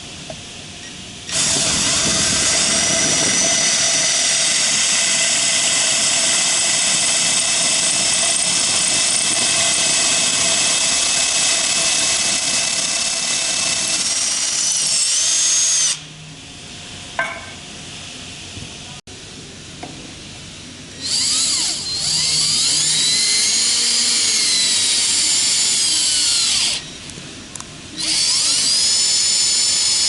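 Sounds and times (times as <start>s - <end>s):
high-pitched motor whine: 0.0s - 16.4s, 20.5s - 30.0s.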